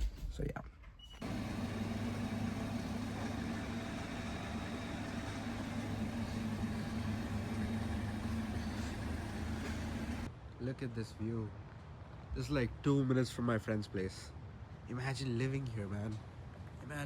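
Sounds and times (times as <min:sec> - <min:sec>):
car engine humming steadily: 0:01.2 - 0:10.3.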